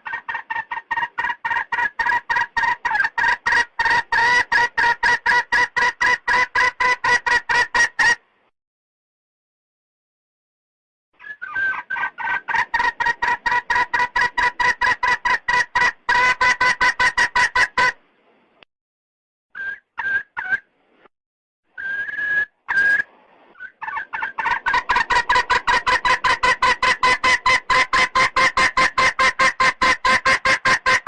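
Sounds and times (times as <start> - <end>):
hen clucking: 0.0 - 8.2, 11.2 - 18.0, 21.8 - 31.0.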